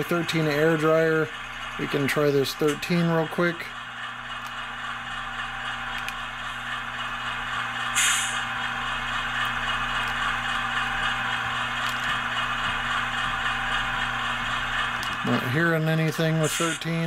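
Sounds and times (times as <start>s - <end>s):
diesel idle hum from speaker: 0.0s - 17.0s
sharp air hiss: 7.9s - 8.5s.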